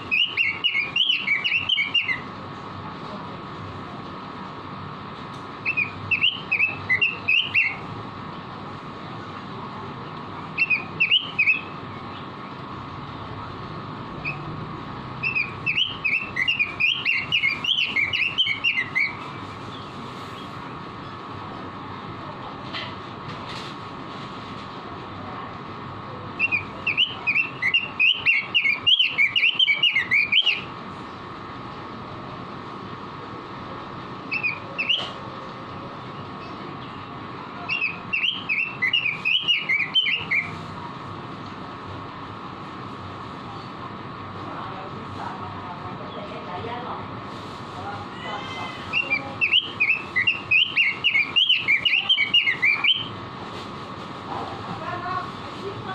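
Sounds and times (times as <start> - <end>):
bird singing whistled notes: 0.0 - 2.3, 5.6 - 7.9, 10.6 - 12.2, 14.2 - 14.5, 15.2 - 19.8, 26.4 - 30.7, 34.3 - 35.2, 37.7 - 40.6, 49.0 - 53.1
steady background hum: 0.0 - 55.9.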